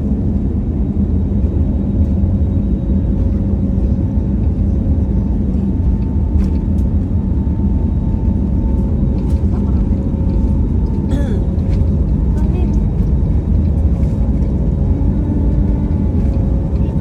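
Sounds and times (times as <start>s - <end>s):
jet engines rumbling in cabin: 0.0s - 17.0s.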